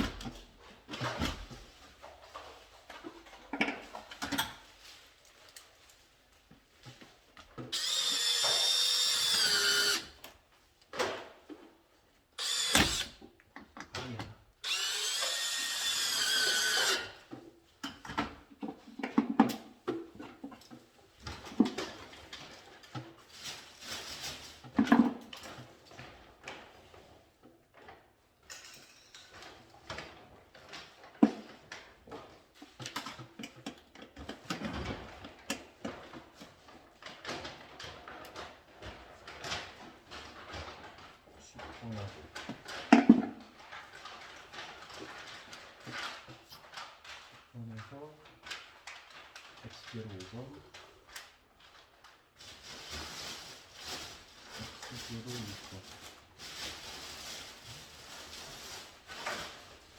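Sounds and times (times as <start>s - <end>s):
electric screwdriver running: 7.7s - 10.2s, 12.4s - 13.2s, 14.6s - 17.2s.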